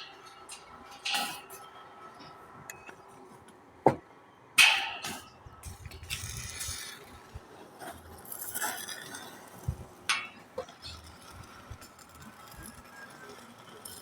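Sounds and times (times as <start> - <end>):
metal clank ringing: 10.1 - 10.4
steel parts knocking and clinking: 10.1 - 11.0.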